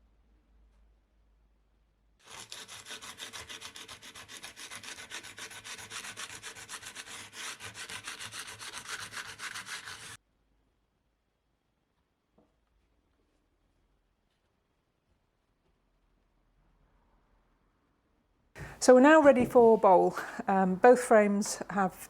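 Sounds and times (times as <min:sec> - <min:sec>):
sandpaper rubbing on wood: 0:02.2 - 0:10.2.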